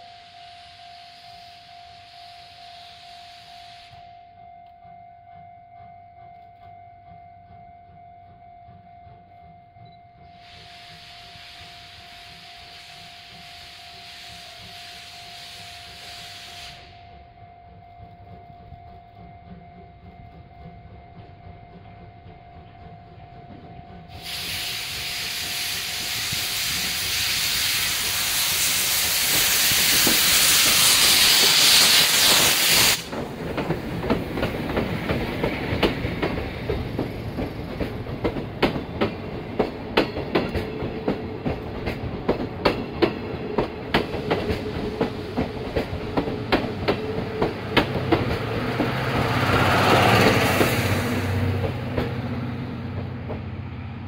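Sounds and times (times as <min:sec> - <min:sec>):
train hiss: 0:00.0 - 0:04.2, 0:10.2 - 0:17.2, 0:24.1 - 0:53.0
train wheels clicking over rail joints: 0:22.6 - 0:54.0.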